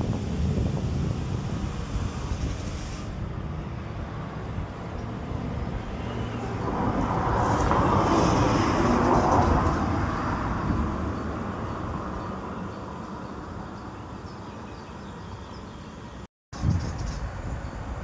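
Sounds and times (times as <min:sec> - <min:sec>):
road vehicle passing by: 0:03.8 - 0:13.6.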